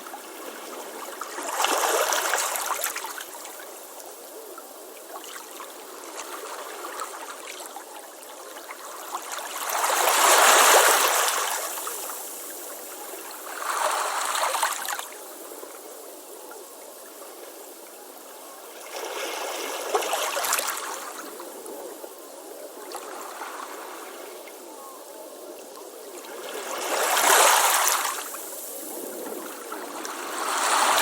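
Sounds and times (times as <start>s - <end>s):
ocean waves breaking on beach: 26.2s - 31.0s.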